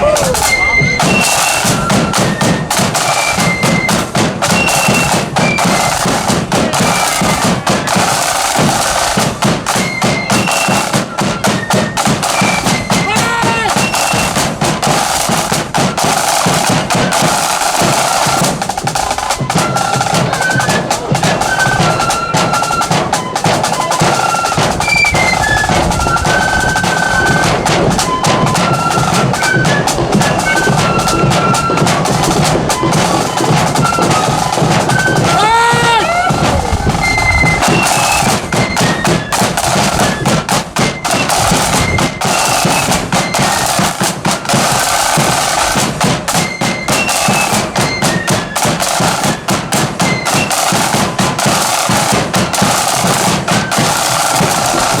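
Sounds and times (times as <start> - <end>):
flute melody: 0.0 - 55.0
snare drum rolls: 0.0 - 55.0
bass drum beats: 24.6 - 39.0.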